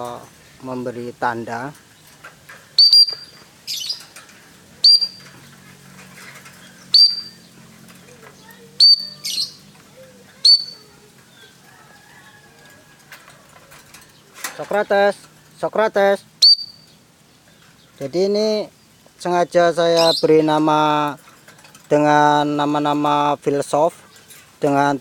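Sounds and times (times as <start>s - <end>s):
lovebird chirping: 1.8s - 5.6s, 6.5s - 12.4s, 16.2s - 18.1s, 19.8s - 20.5s
high signal whistles: 16.4s - 16.9s.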